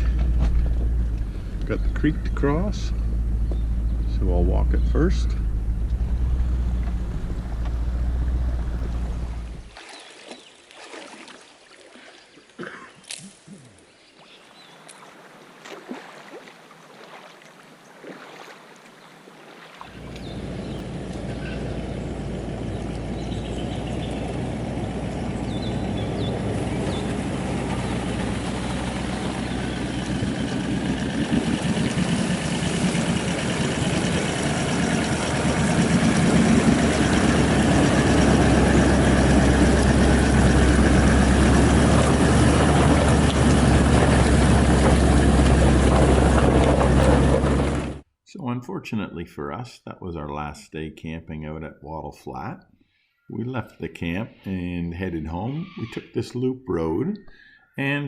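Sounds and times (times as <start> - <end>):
vehicle engine droning: 0.0 - 9.8, 19.8 - 48.0
faint outdoor sounds: 0.0 - 30.5, 48.2 - 58.0.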